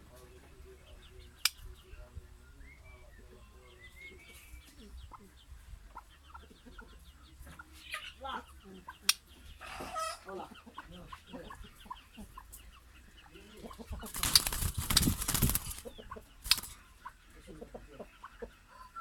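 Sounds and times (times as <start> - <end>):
clucking bird calls: 0.0 - 19.0
loud rustling: 14.1 - 16.8.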